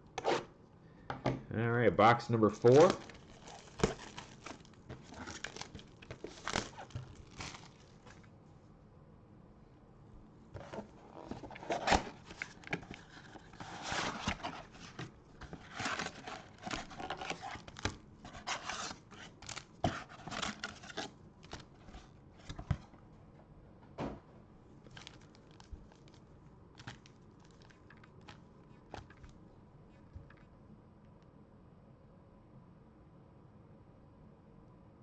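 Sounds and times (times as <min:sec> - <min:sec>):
wrapper tearing and crinkling: 0:02.5 - 0:08.2, 0:10.7 - 0:21.7, 0:24.8 - 0:26.2, 0:26.8 - 0:28.4.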